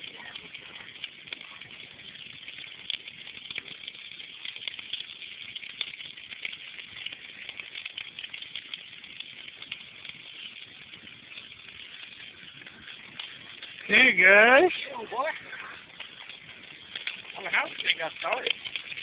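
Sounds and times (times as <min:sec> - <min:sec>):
bonfire crackling: 0:00.0 - 0:19.0.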